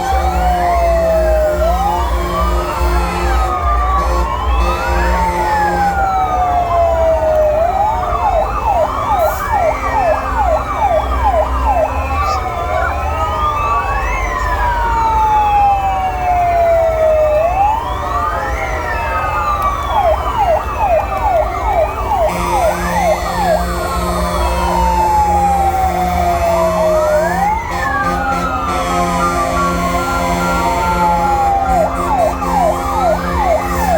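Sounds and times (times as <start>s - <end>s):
siren wails: 0.0s - 33.9s
siren fast yelps: 7.8s - 16.1s.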